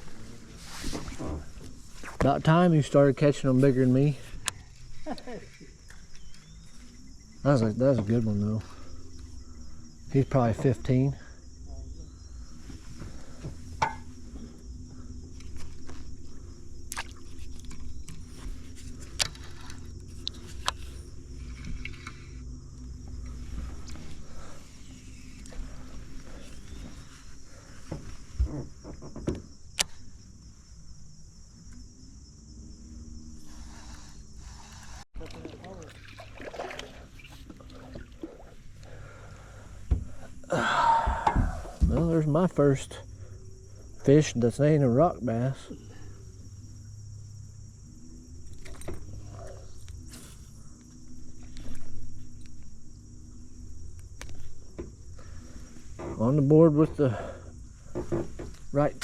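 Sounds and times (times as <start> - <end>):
low steady hum: 0.0 - 28.8
crickets chirring: 0.0 - 59.0.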